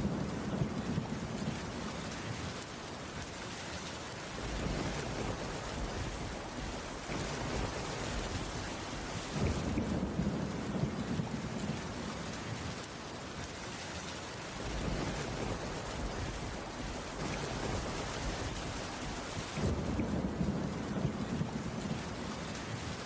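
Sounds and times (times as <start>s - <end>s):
rain on a wooden roof: 0.0s - 23.0s.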